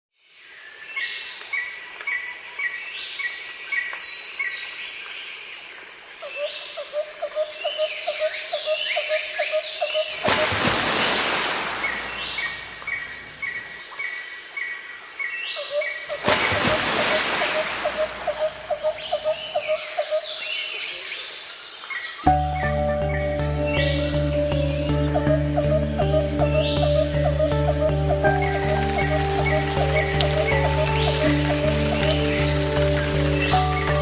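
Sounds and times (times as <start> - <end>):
birds singing and chirping: 6.3 - 34.0
rushing hiss: 10.2 - 13.4, 16.2 - 18.8.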